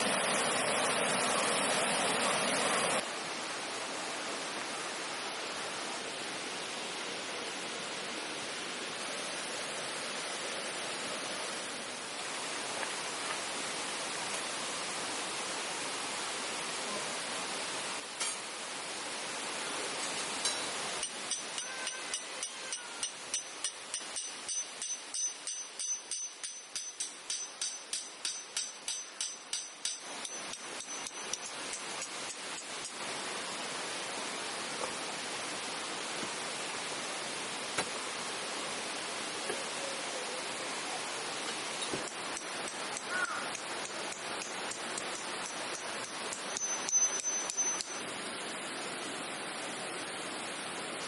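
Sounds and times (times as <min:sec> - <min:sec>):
steady rushing noise: 0:00.0 - 0:16.7
hammer striking metal tent peg: 0:20.4 - 0:31.5.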